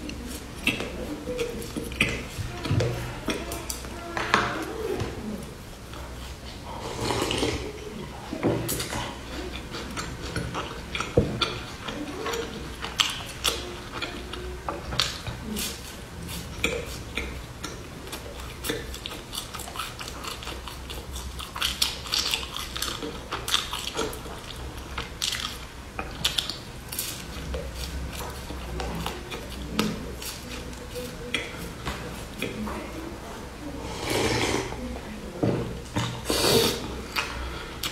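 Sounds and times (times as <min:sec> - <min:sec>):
crunching and chewing brittle: 0:08.6 - 0:32.9, 0:37.0 - 0:37.9.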